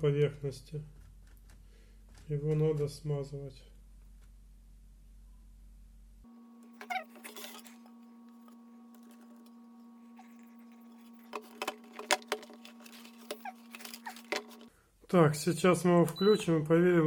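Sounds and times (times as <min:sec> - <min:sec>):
steady hum: 0:03.8 - 0:15.0.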